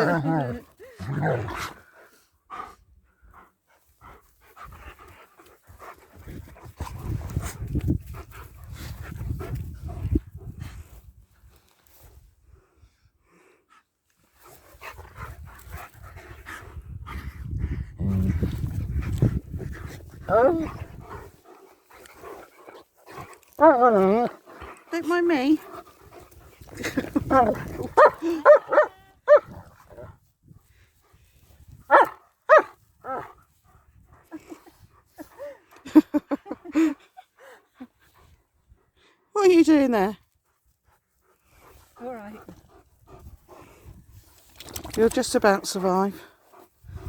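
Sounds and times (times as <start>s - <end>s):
dogs panting: 1.3s - 11.1s, 13.6s - 39.3s, 40.3s - 47.0s
dog barking high-pitched: 28.0s - 29.5s.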